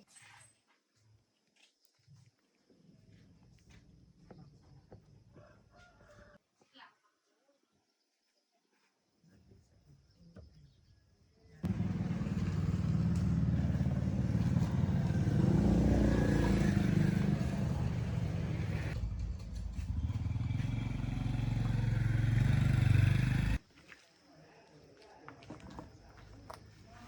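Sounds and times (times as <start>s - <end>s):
vehicle engine low rumble: 11.7s - 23.6s.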